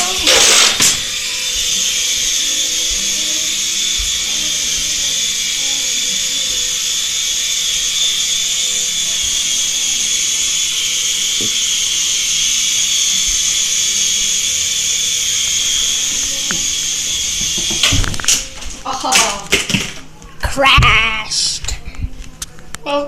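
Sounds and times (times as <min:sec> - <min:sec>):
toy helicopter rotor whirring: 0:00.0 - 0:20.0.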